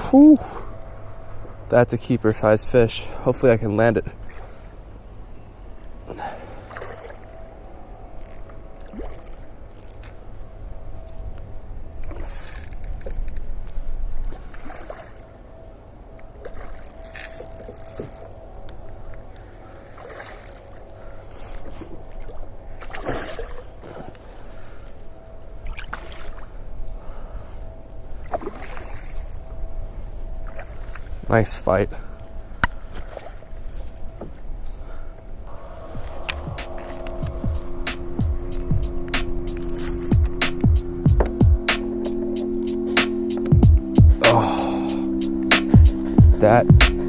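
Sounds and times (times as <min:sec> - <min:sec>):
steady low rumble: 0:00.0 - 0:06.6, 0:35.3 - 0:47.0
water splashes: 0:06.0 - 0:07.6, 0:08.7 - 0:10.1, 0:14.2 - 0:15.5, 0:16.2 - 0:18.4, 0:19.4 - 0:24.8, 0:25.6 - 0:26.6, 0:28.2 - 0:29.2.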